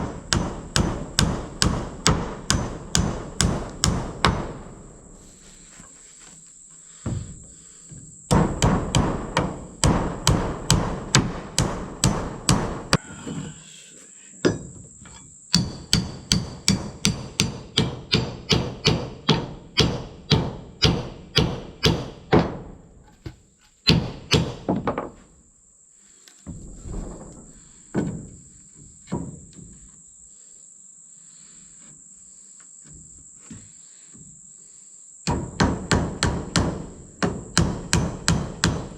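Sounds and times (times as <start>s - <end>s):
hammer striking wood: 0.0s - 4.8s, 7.0s - 13.0s, 15.5s - 25.2s, 35.3s - 38.9s
high insect buzz: 0.0s - 38.9s.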